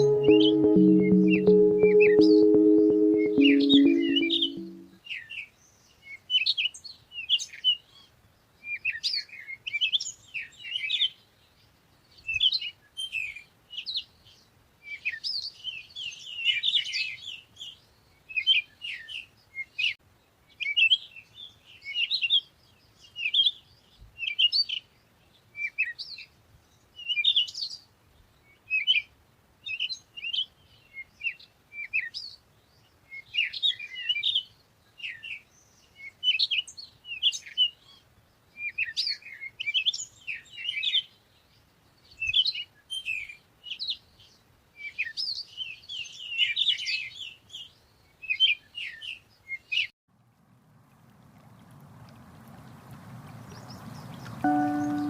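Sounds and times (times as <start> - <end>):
songbirds chirping: 51.0 - 55.0.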